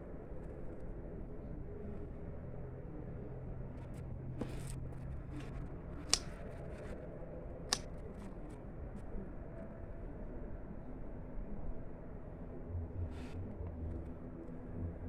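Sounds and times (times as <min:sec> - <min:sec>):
plant stems snapping: 0:06.1 - 0:06.4.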